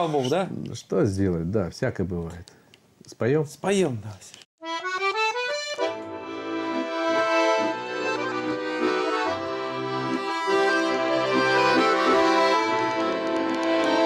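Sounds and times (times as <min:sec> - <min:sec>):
button accordion playing: 0:04.6 - 0:14.0.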